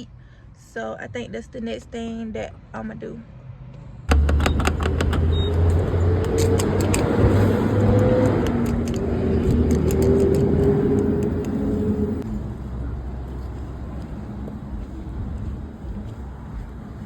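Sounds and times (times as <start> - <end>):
car engine rumbling: 3.8 - 17.0
sharp clicks: 4.1 - 11.6.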